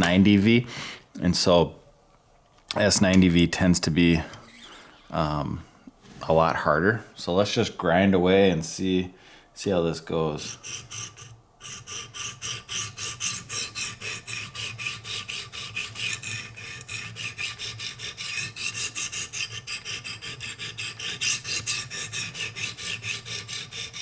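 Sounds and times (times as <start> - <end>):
sharpening stones rasping on knife edge: 10.5 - 24.0.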